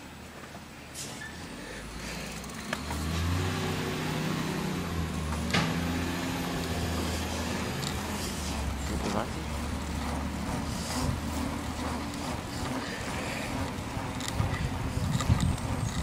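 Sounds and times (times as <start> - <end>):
garbage truck engine revving: 1.8 - 16.0.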